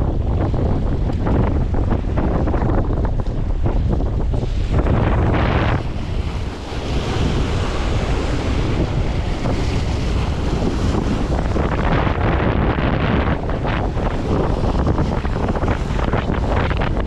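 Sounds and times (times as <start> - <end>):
sea waves: 0.0 - 17.0
wind buffeting microphone: 0.0 - 17.0.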